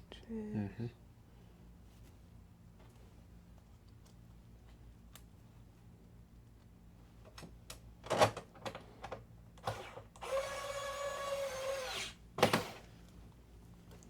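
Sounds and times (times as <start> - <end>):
electric screwdriver motor: 9.6 - 12.2.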